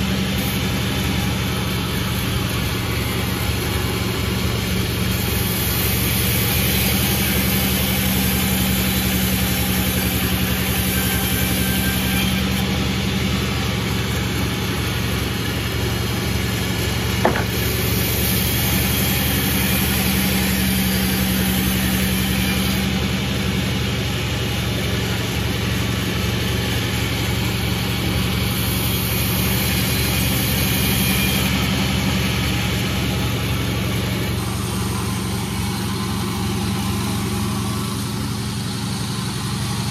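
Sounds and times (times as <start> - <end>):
sawmill engine hum: 0.0 - 39.9.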